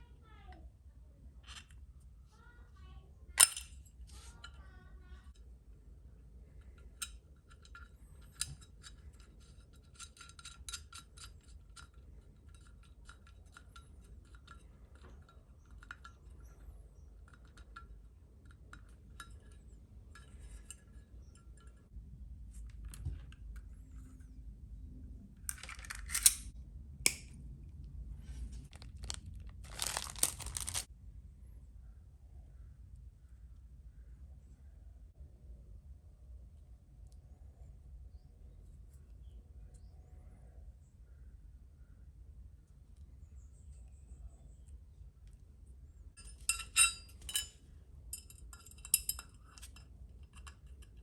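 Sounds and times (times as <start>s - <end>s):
light clicks of small parts: 6.5s - 21.8s, 28.2s - 30.9s.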